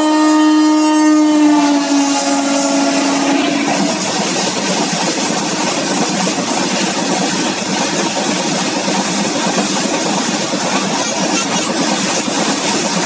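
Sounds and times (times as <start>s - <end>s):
train horn blast: 0.0s - 4.1s
freight train wheels rumbling and rattling: 1.3s - 13.0s.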